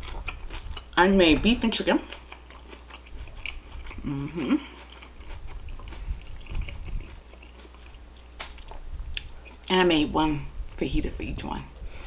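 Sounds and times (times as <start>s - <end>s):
person chewing food: 0.0s - 9.7s
person humming: 4.0s - 4.7s.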